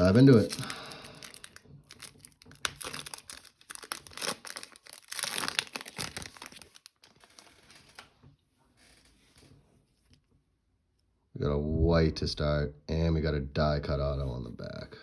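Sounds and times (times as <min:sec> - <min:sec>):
plastic wrapper tearing and crinkling: 0:00.0 - 0:08.2.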